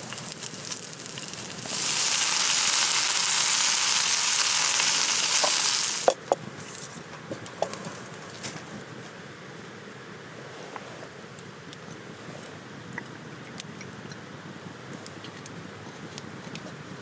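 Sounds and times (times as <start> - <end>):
food sizzling in a hot pan: 0.0 - 6.2
fire crackling with small pops: 0.0 - 6.3.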